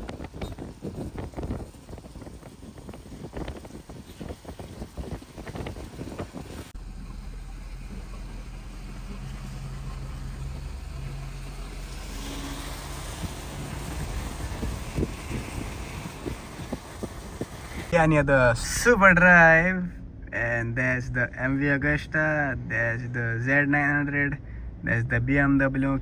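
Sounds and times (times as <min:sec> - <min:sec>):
wind buffeting microphone: 0:00.0 - 0:06.8, 0:12.7 - 0:18.0
vehicle engine drone: 0:00.0 - 0:26.0
hiss: 0:12.0 - 0:17.9.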